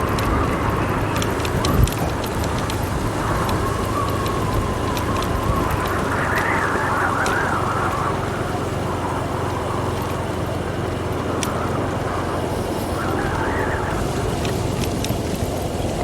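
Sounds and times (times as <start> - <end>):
sharp ticks: 0.0 - 8.1
motorbike engine running: 0.0 - 16.0
wind whistling: 0.0 - 16.0.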